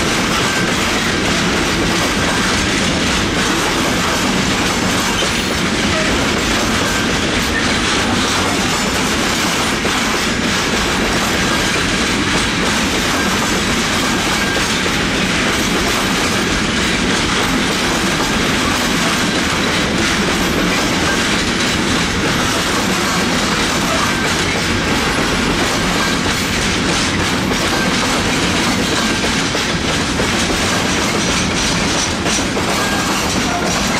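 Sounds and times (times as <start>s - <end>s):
freight train wheels on rails: 0.0s - 33.9s.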